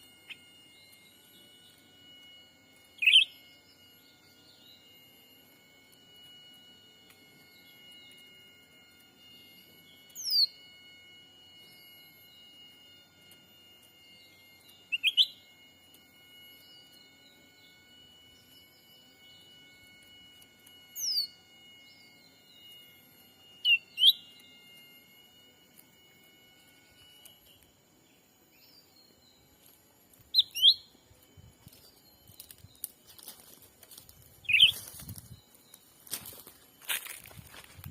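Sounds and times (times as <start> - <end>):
small bird chirping: 0.0 - 5.9, 7.1 - 10.7, 11.6 - 25.1, 26.5 - 33.2, 34.0 - 36.1
falling whistle: 0.0 - 27.8, 30.3 - 31.6, 34.4 - 35.4
faint steady high tones: 0.0 - 37.9
bird calls: 2.9 - 3.4, 34.4 - 35.2
short rising chirps: 34.3 - 36.8.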